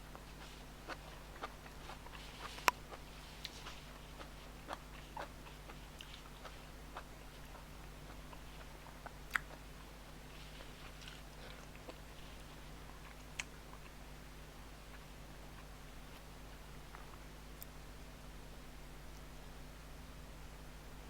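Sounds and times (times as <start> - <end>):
faint steady hum: 0.0 - 21.0
person chewing: 0.1 - 14.0.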